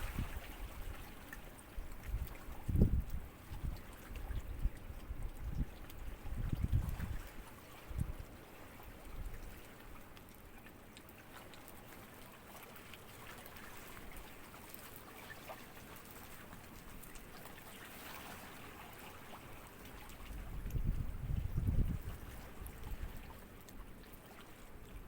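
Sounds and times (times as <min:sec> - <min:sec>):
small waves lapping: 0:00.0 - 0:25.0.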